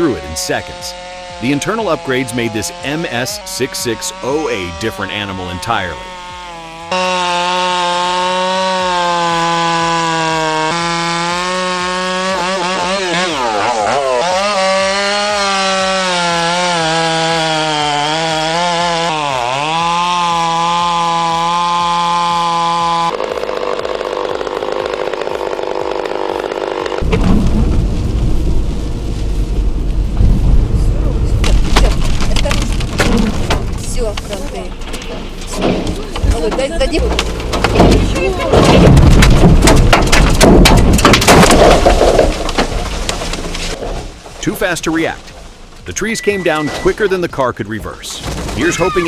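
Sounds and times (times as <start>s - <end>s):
chainsaw cutting wood: 0.0s - 30.4s, 31.2s - 46.1s
loud low rumbling: 22.9s - 46.0s.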